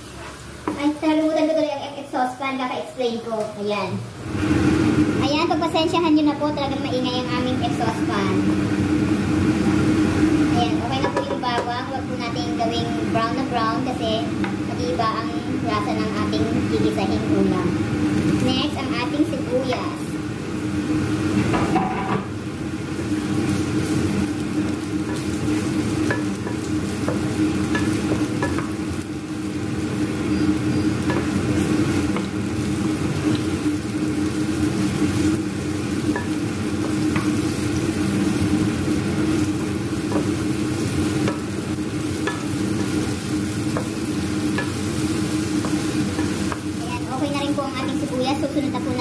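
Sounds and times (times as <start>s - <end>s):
kitchen exhaust fan hum: 0.0s - 49.0s
onions sizzling in oil: 0.0s - 49.0s.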